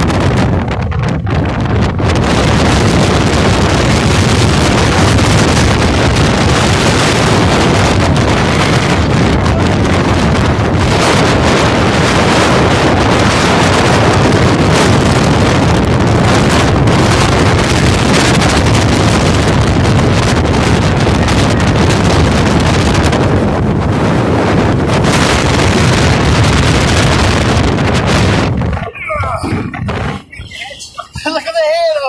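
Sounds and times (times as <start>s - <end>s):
strong wind on microphone: 0.0s - 32.0s.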